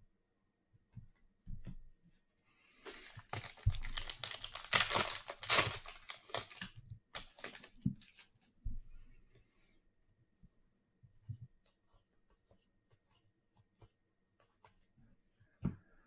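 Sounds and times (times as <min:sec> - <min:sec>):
cards rustling and tapping: 0:02.9 - 0:08.4
foil wrapper tearing and crinkling: 0:03.0 - 0:08.3.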